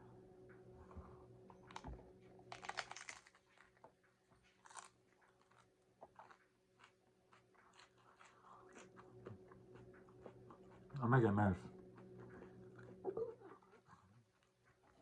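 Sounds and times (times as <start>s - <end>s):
crunching taco shell: 1.6s - 10.4s.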